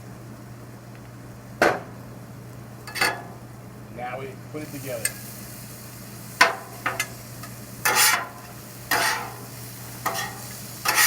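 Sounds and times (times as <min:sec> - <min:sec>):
steady low hum: 0:00.0 - 0:11.0
sizzle: 0:01.9 - 0:11.0
spatulas scraping griddle: 0:06.4 - 0:11.0.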